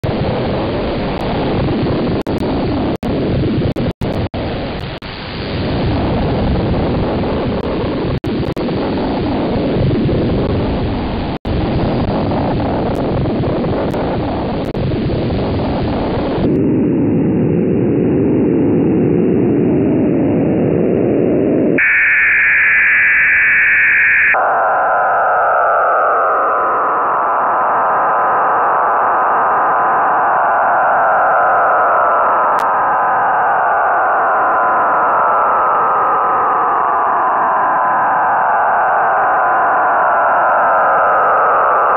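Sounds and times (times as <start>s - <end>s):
radio hiss and static: 0.0s - 16.6s, 21.8s - 30.3s
shrill radio tone: 21.8s - 41.9s
warbling radio whistle: 21.8s - 41.9s.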